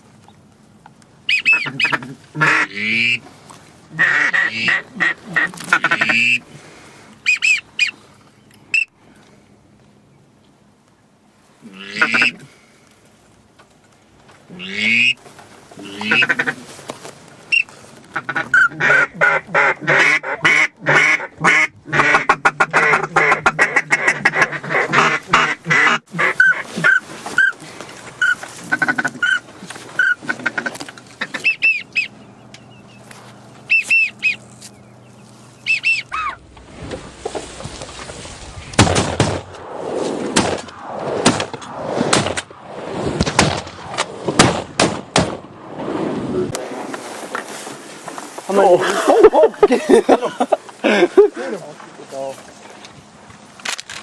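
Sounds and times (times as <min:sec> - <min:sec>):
duck quacking: 0:01.3 - 0:03.2, 0:03.9 - 0:06.5, 0:07.2 - 0:08.0, 0:11.7 - 0:12.5, 0:14.5 - 0:15.2, 0:15.8 - 0:16.7, 0:17.5 - 0:32.2, 0:33.6 - 0:34.5, 0:35.6 - 0:36.4.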